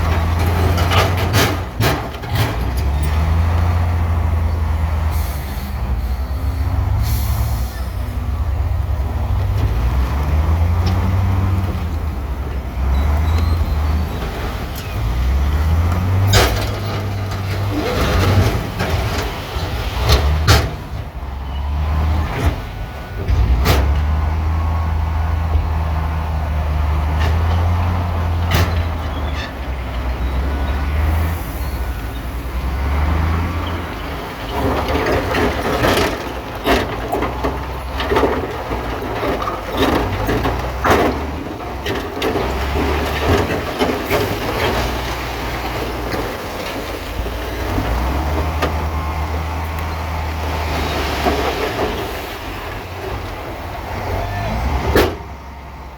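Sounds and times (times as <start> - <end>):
metallic clanks and knocks: 0.0 - 3.3, 15.8 - 20.9
heavy diesel engine revving: 0.0 - 55.9.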